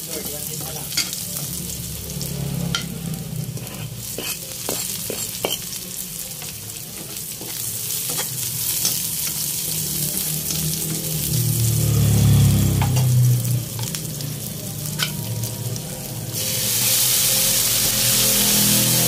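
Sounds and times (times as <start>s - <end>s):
garlic and onion sizzling in oil: 0.0s - 19.0s.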